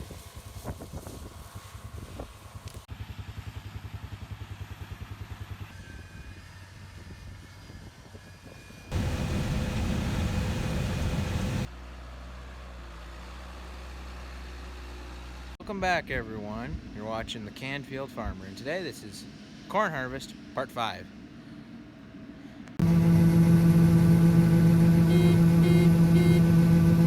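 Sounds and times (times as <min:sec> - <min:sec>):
machinery steady low hum: 0:08.9 - 0:11.7, 0:20.3 - 0:27.0
fast pulsing engine: 0:22.8 - 0:27.0.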